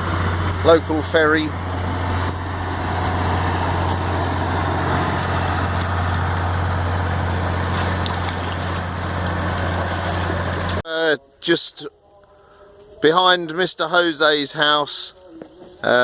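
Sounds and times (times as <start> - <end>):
boat engine low drone: 0.0 - 10.8.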